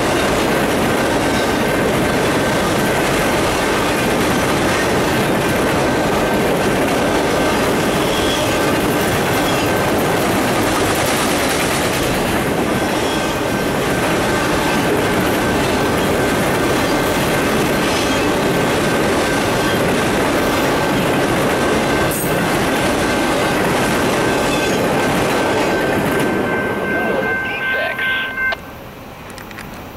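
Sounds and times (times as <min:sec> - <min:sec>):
train wheels clattering on rails: 0:00.0 - 0:27.2.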